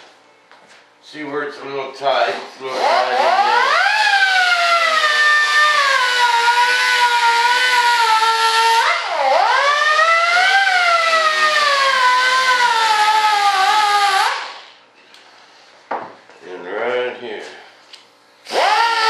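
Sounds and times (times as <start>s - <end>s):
pneumatic die grinder whining: 2.6s - 14.8s, 18.4s - 19.0s.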